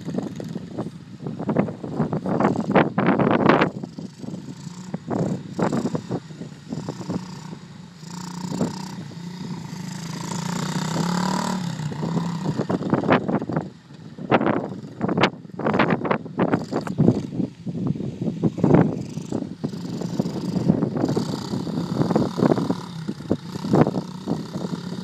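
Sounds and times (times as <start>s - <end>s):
dirt bike engine running: 0.0s - 25.0s
wind buffeting microphone: 0.0s - 25.0s.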